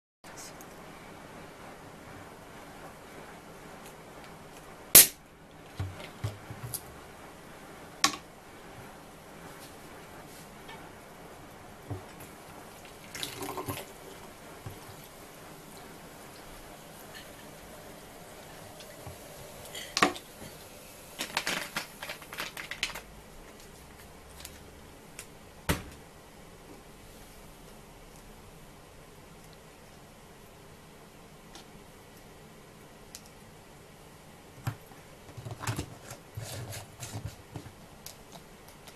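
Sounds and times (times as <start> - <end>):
sharp cracks: 5.0 - 5.2.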